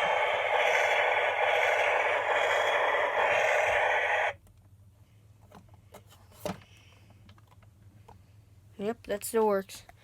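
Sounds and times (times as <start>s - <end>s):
toy truck electronic rushing noise: 0.0s - 4.4s.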